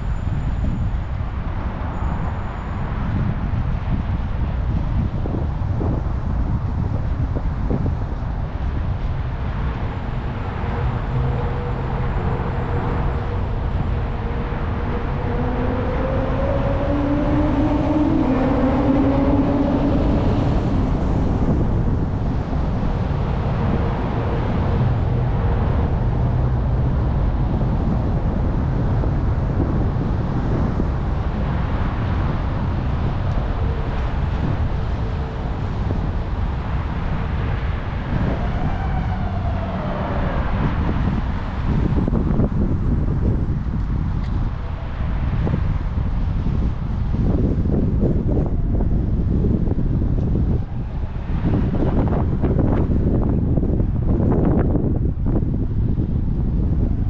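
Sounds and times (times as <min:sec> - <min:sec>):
road noise: 0:00.0 - 0:57.0
wind on microphone: 0:00.0 - 0:57.0
motor vehicle passing: 0:09.3 - 0:43.6.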